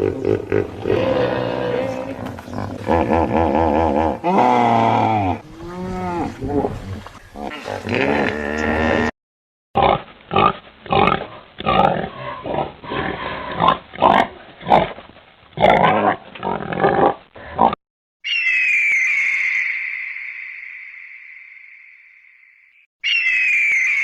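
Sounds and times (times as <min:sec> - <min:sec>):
pig grunting: 0:00.0 - 0:09.1, 0:09.8 - 0:14.9
animal call: 0:18.2 - 0:20.5, 0:23.0 - 0:24.0
high bird call: 0:18.2 - 0:24.0.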